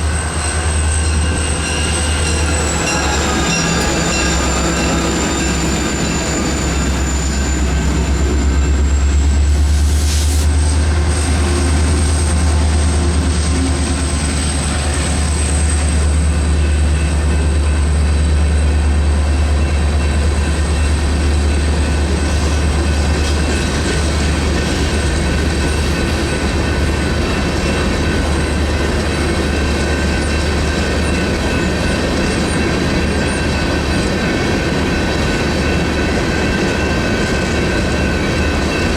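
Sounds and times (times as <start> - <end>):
train wheels rumbling: 0.0 - 38.9
high-pitched wheel squeal: 0.1 - 9.4.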